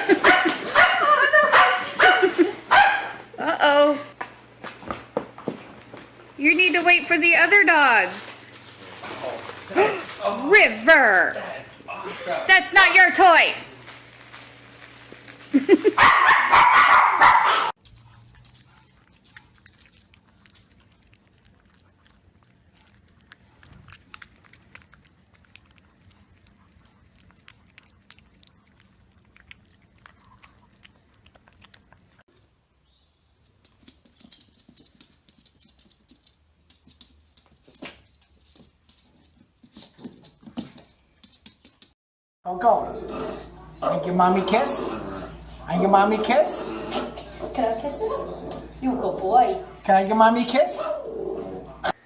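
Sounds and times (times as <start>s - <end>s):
dog barking loudly: 0.1s - 3.3s, 16.0s - 17.8s.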